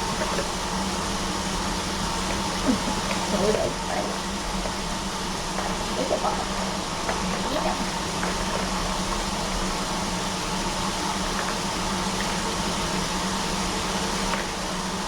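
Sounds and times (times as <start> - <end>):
fan running: 0.0 - 15.0.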